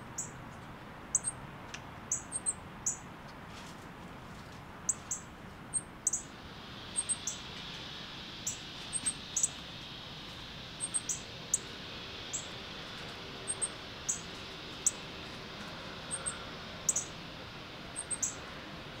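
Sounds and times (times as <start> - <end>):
steady faint hiss: 0.0 - 19.0
high-pitched bird chirps: 1.1 - 1.4, 2.1 - 3.0, 4.9 - 6.3, 6.9 - 7.5, 8.4 - 9.6, 10.8 - 11.7, 13.5 - 15.0, 16.1 - 17.1, 18.0 - 18.4.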